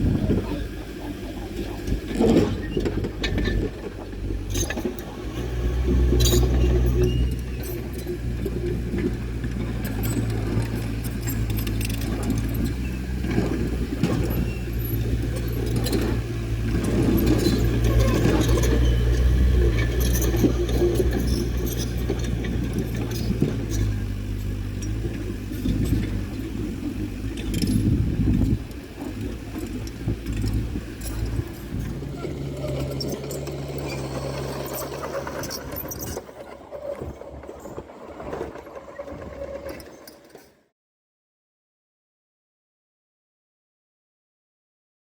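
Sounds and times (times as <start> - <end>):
heavy machine engine running: 0.0 - 40.4
metallic clinking and clanking: 6.0 - 37.9.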